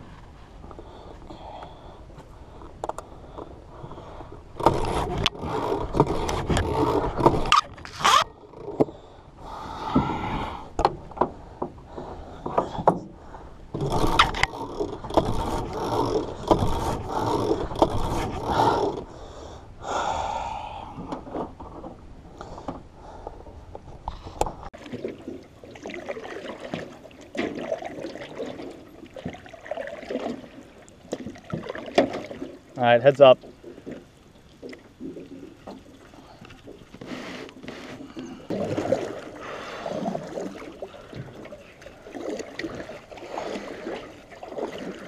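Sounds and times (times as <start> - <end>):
knocks and scrapes: 13.7 - 19.0.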